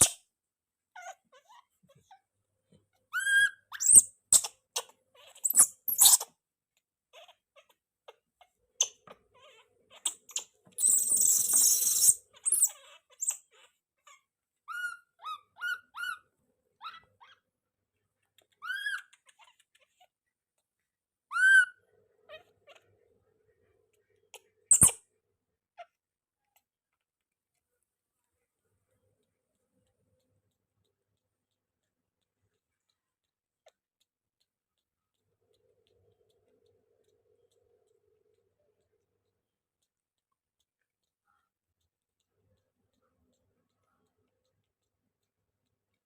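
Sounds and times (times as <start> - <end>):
baby monkey squeaking: 0.0 - 0.3, 0.9 - 2.2, 3.0 - 6.4, 7.1 - 7.8, 8.8 - 16.2, 16.8 - 17.4, 18.4 - 20.1, 21.3 - 22.8, 24.3 - 25.0.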